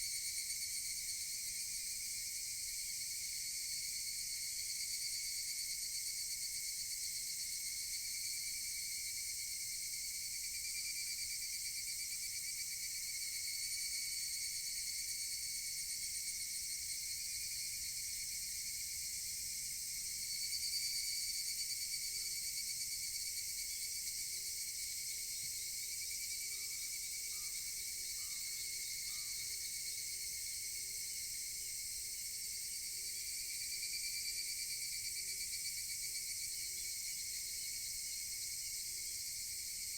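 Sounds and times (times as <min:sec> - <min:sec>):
cicadas shrilling: 0:26.5 - 0:29.7.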